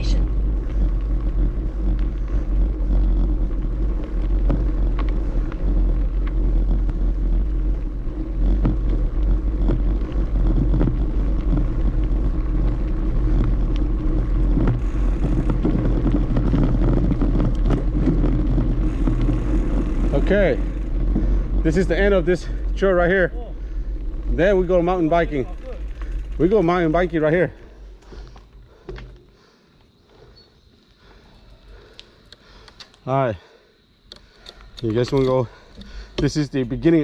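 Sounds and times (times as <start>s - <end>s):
wind rumble on microphone: 0.0s - 28.8s
bicycle tyre noise: 0.0s - 37.0s
light clicks and rattles: 34.0s - 37.0s.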